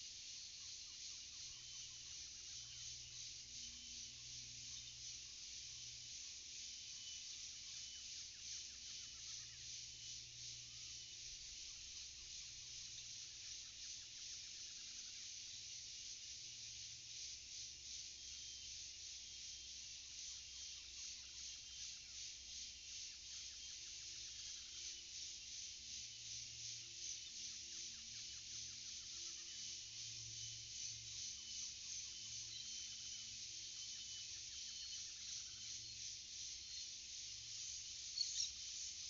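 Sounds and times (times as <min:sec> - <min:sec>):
insects pulsing chorus: 0:00.0 - 0:39.0.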